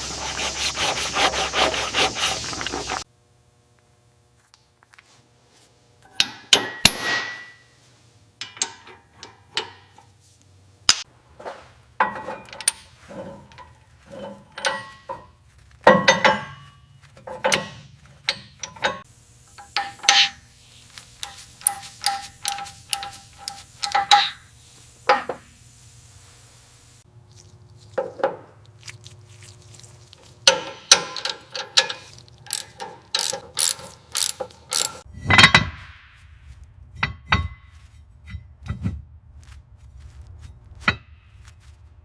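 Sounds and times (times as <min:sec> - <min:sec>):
hand tool clicks and knocks: 0:21.2 - 0:24.4, 0:30.4 - 0:35.0.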